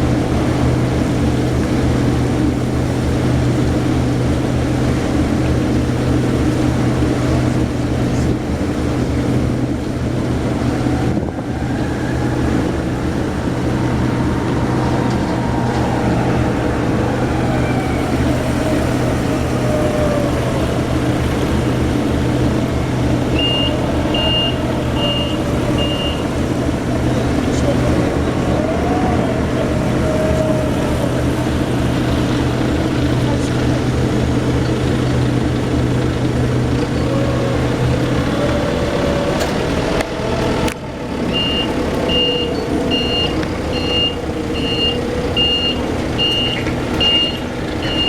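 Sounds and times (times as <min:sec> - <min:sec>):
engine droning: 0:00.0 - 0:48.0
reversing alarm beeps: 0:23.4 - 0:26.2, 0:41.4 - 0:48.0.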